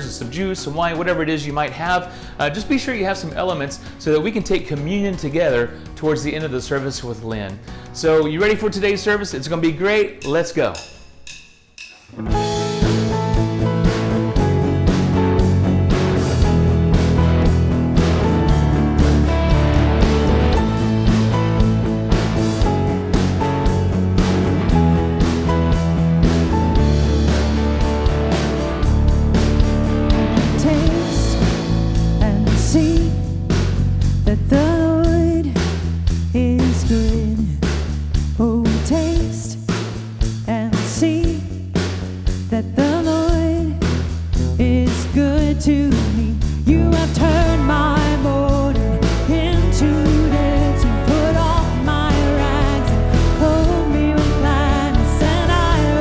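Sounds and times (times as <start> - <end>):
drum beat: 10.2 - 36.0, 46.0 - 56.0
guitar: 12.0 - 56.0
person singing: 30.2 - 33.4, 34.3 - 35.6, 44.6 - 56.0.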